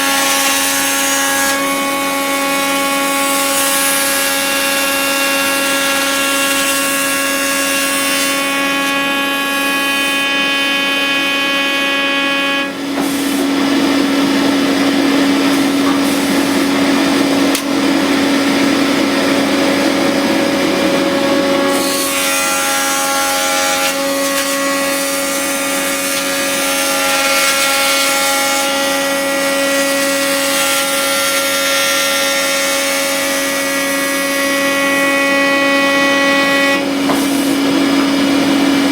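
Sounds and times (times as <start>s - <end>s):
tool cutting wood: 0.0s - 38.9s
woodworking machine whining: 0.0s - 38.9s.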